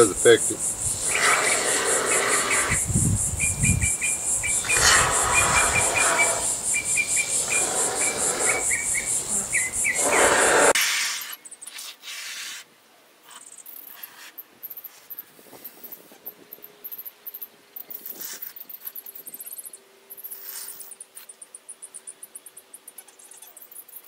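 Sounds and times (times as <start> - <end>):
insects trilling: 0.0 - 12.6, 13.3 - 24.0
rushes of noise: 0.6 - 3.4, 4.3 - 10.8.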